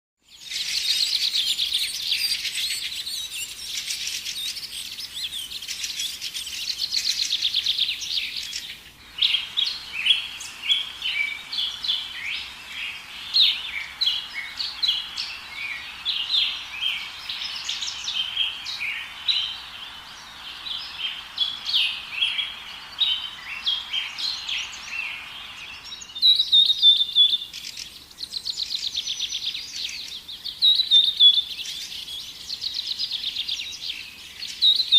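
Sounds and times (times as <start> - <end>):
songbirds chirping and trilling: 0.2 - 34.9.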